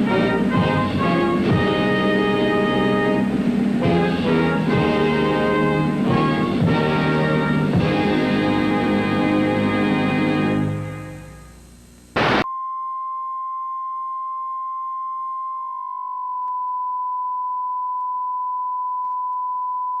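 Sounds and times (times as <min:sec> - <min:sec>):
burst of static: 0:00.0 - 0:12.5
steady test tone: 0:00.0 - 0:19.7.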